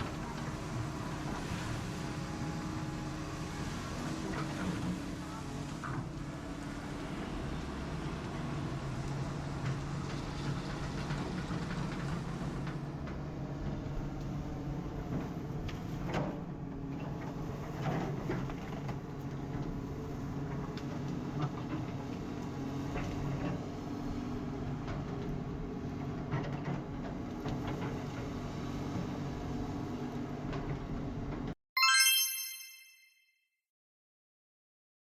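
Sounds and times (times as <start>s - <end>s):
bright chime: 31.8s - 33.3s.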